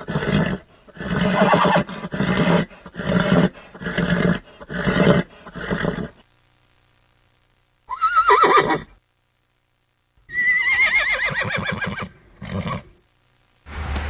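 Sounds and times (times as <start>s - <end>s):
horse whinnying: 0.0s - 6.1s, 7.9s - 8.9s, 10.3s - 12.8s.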